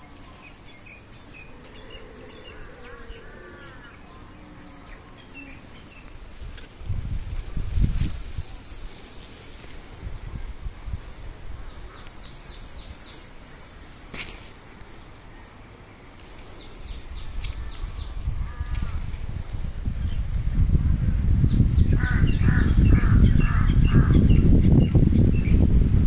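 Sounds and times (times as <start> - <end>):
songbird singing: 0.0 - 26.0
low microphone rumble: 16.7 - 26.0.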